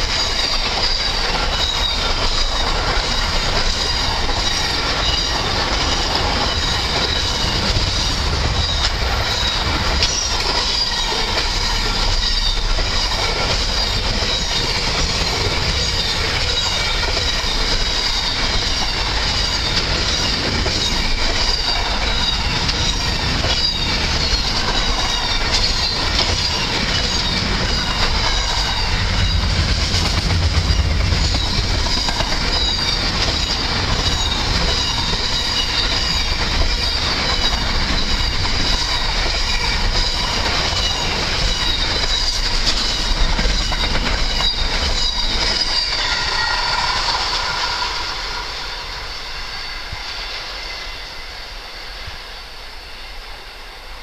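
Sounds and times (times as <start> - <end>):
high-pitched wheel squeal: 0.0 - 29.5, 30.6 - 52.2
train wheels clattering on rails: 0.0 - 54.0.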